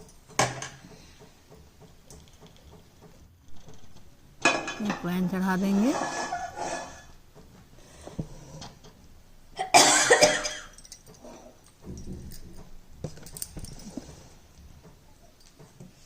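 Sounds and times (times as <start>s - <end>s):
person coughing: 9.6s - 10.8s.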